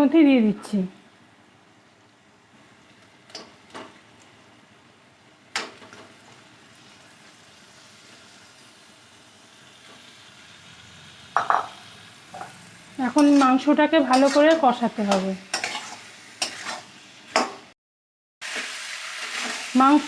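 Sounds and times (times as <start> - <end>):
chicken sizzling in a pan: 1.8 - 17.7, 18.4 - 20.0
utensils knocking against pan: 11.4 - 11.7, 17.4 - 17.6.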